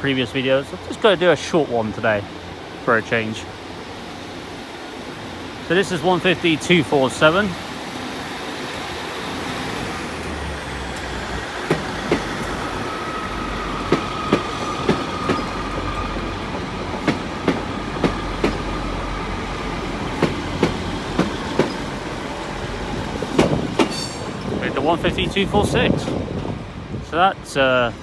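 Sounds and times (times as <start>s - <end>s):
diesel train rumble: 0.0s - 28.0s
wheels clicking over rail joints: 10.2s - 25.2s.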